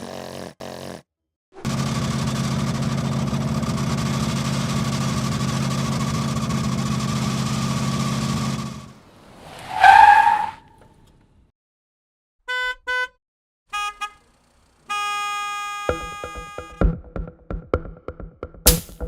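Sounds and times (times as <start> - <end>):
tractor engine droning: 1.6 - 9.0.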